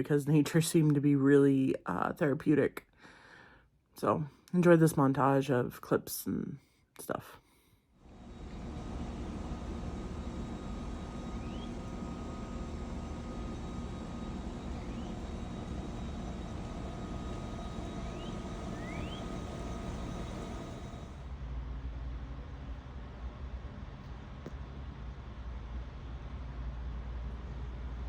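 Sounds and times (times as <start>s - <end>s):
steady low rumble: 8.1s - 21.3s
bird chirping: 9.1s - 21.1s.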